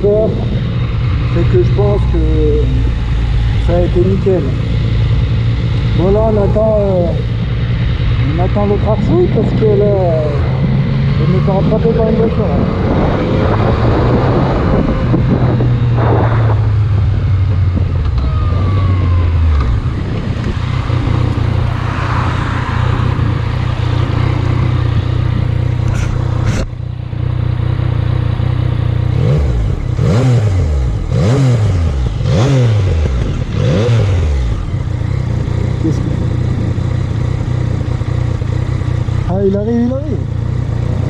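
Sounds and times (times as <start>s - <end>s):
motorcycle engine idling: 0.0s - 12.2s, 22.6s - 29.9s, 34.2s - 41.0s
engine revving: 0.0s - 41.0s
other vehicle engines: 0.0s - 41.0s.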